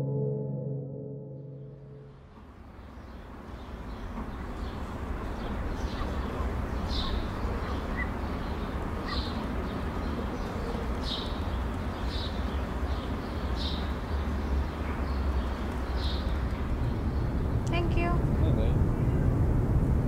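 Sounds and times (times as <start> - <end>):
bird chirping: 2.5 - 17.9
steady low rumble: 14.9 - 20.0.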